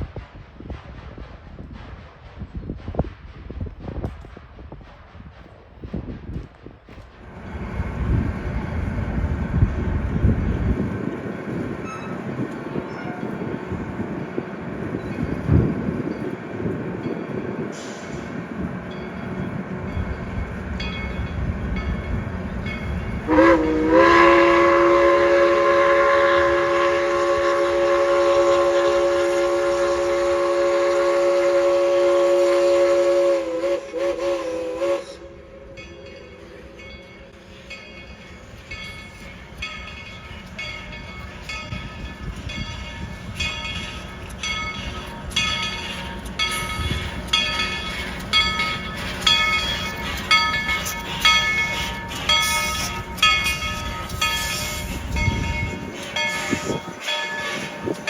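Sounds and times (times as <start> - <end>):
rhythmic train clatter: 0.0 - 58.0
train rumbling: 0.0 - 58.0
steam locomotive chime whistle: 11.8 - 13.5, 17.7 - 18.3, 20.0 - 58.0.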